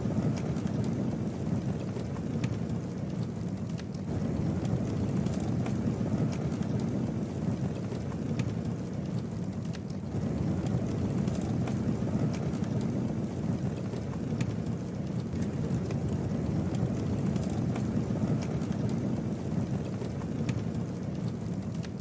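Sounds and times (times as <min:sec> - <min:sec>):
campfire crackling and popping: 0:00.0 - 0:22.0
low rush of flames: 0:00.0 - 0:22.0.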